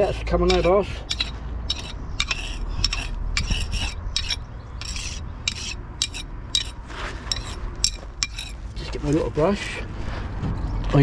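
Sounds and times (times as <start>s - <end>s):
hand tool scraping mortar: 0.0s - 9.8s.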